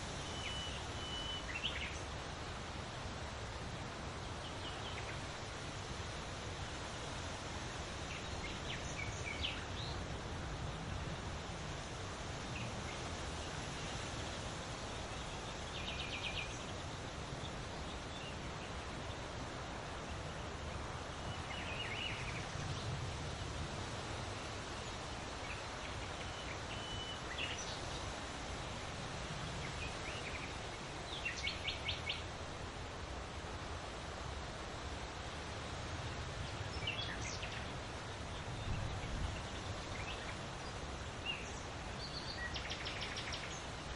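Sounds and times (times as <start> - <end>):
leaves rustling in wind: 0.0 - 43.9
small birds chirping: 36.3 - 43.9.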